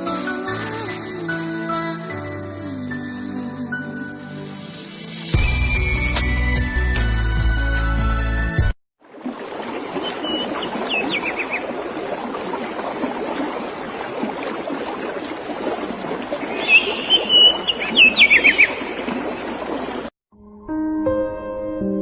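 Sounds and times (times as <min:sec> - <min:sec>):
birds chirping: 0:09.9 - 0:11.8, 0:12.4 - 0:20.1
high bird trill: 0:12.9 - 0:19.7.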